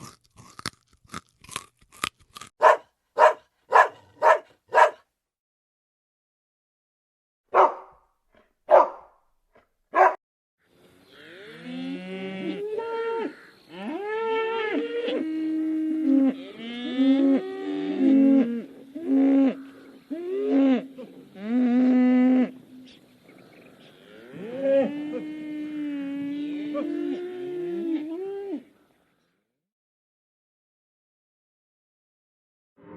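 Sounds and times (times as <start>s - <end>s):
dog barking: 2.6s - 5.1s, 7.5s - 8.0s, 8.7s - 9.2s, 9.9s - 10.2s
cattle mooing: 11.1s - 28.7s.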